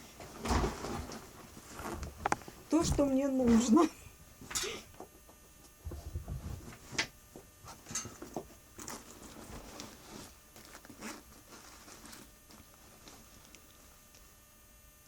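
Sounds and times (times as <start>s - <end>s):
faint rustling: 0.0s - 3.8s, 8.8s - 14.0s.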